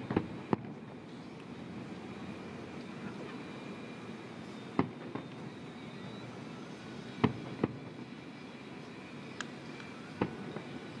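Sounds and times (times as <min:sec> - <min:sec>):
distant fireworks bangs: 0:00.0 - 0:01.0, 0:04.7 - 0:05.6, 0:07.1 - 0:08.2, 0:10.1 - 0:11.0
steady background hum: 0:00.0 - 0:11.0.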